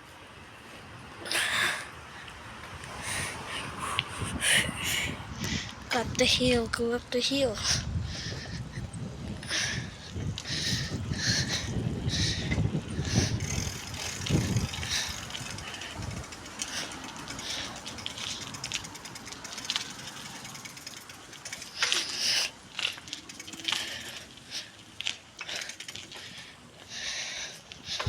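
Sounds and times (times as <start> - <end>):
bicycle rolling and rattling: 0.0 - 28.0
bicycle freewheel hub ticking: 8.0 - 28.0.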